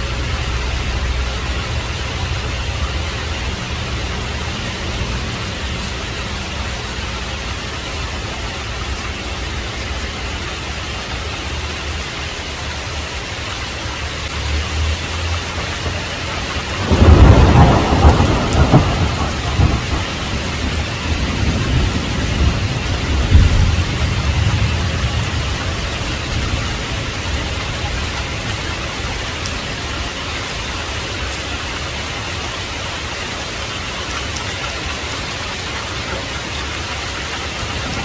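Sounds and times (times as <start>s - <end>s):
heavy rain falling: 0.0s - 38.0s
low thunder rumble: 15.7s - 29.8s, 37.2s - 38.0s
loud thunder crack: 16.6s - 25.6s.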